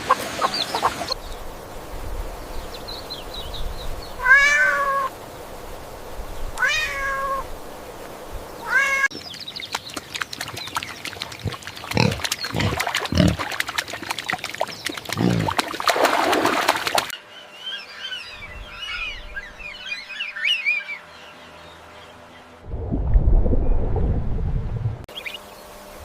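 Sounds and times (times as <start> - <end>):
pig grunting: 11.3 - 13.5, 15.1 - 15.6
high chirping bird calls: 17.2 - 22.5, 25.1 - 25.6.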